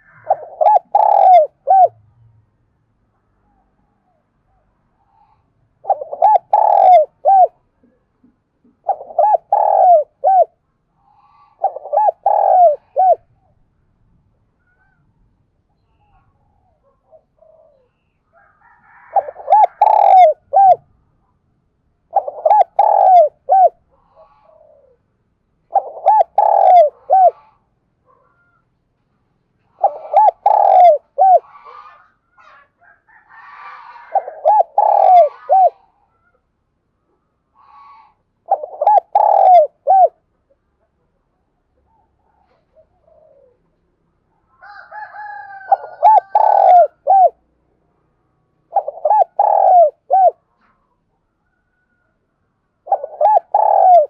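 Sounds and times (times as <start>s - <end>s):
dove cooing: 0.0s - 2.0s, 5.1s - 8.0s, 8.7s - 13.4s, 16.1s - 18.0s, 18.6s - 20.9s, 22.1s - 28.6s, 29.7s - 36.3s, 37.7s - 40.6s, 41.9s - 43.7s, 44.6s - 47.4s, 48.7s - 50.8s, 52.8s - 54.0s
faint bird chirps: 14.6s - 20.7s.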